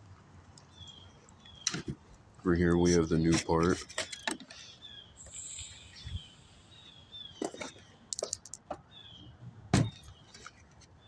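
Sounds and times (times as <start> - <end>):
small birds chirping: 0.6 - 11.0
handling clicks and knocks: 3.2 - 4.6, 7.4 - 8.9.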